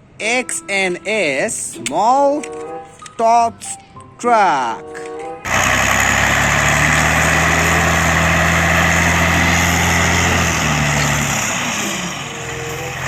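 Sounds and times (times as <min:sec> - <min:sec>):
vehicle engine idling: 0:05.5 - 0:13.0.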